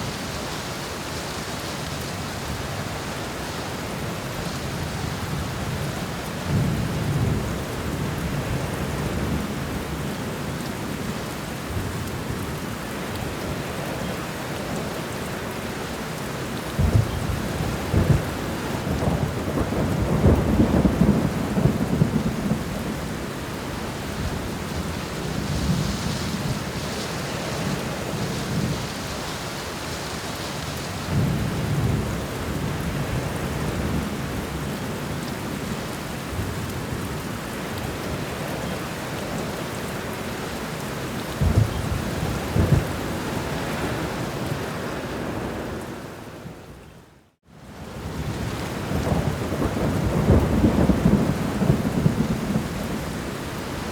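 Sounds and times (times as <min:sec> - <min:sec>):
heavy rain: 0:00.0 - 0:53.9
thunder rumbling: 0:16.8 - 0:29.7, 0:41.3 - 0:46.6, 0:48.1 - 0:53.9.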